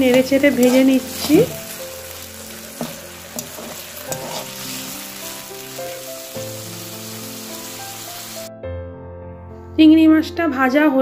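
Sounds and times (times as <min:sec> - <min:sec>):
prawns sizzling in oil: 0:00.0 - 0:08.5.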